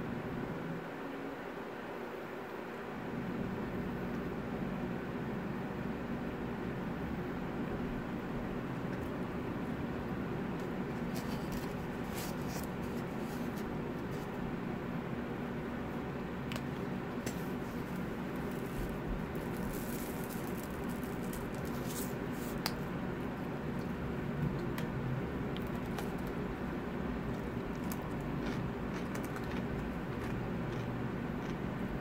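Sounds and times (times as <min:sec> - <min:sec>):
low room hum: 0:00.0 - 0:32.0
wet chewing and lip-smacking: 0:27.3 - 0:31.8.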